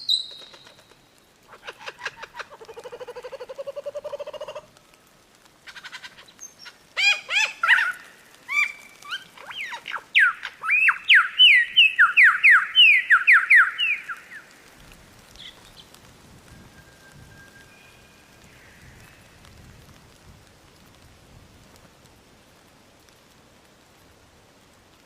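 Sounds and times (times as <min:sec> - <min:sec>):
lyrebird singing: 0:00.0 - 0:00.9, 0:05.8 - 0:14.5.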